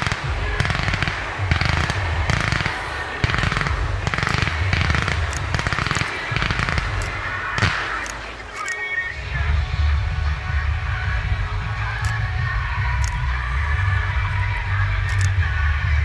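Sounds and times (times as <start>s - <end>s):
fireworks low thuds: 0.0s - 8.6s
fireworks crackling: 0.0s - 15.4s.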